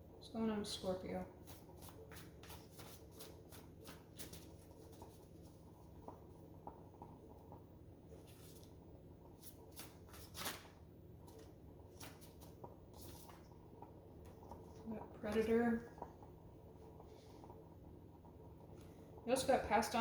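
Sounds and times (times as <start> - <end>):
cards being shuffled: 1.8 - 5.1, 9.4 - 11.4
card rustle: 9.4 - 13.4.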